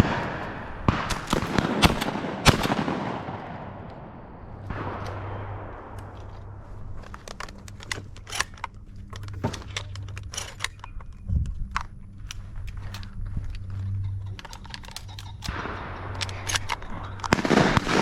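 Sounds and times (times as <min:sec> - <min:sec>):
shotgun shot echoing: 0:00.0 - 0:07.0, 0:15.4 - 0:18.0
low steady hum: 0:00.0 - 0:18.0
light clicks and clatter: 0:07.0 - 0:17.5.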